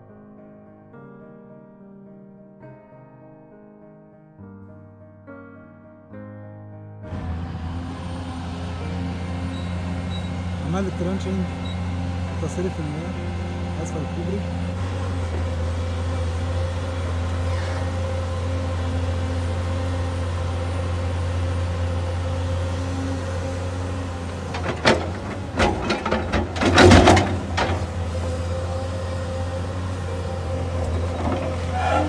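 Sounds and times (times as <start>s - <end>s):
vehicle engine humming: 7.1s - 32.0s
knocks and clatter: 24.2s - 28.6s, 30.8s - 32.0s.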